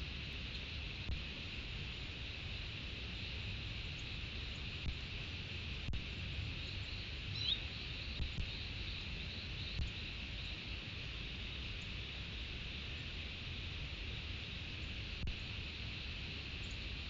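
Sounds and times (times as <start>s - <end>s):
high insect chorus: 0.0s - 17.0s
faint bird chirps: 6.5s - 10.7s.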